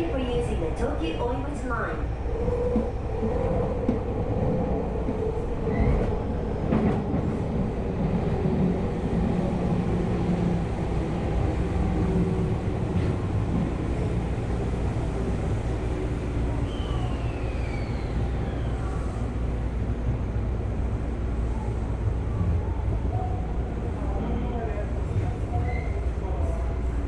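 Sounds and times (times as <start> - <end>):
train wheels on rails: 2.3 - 20.3.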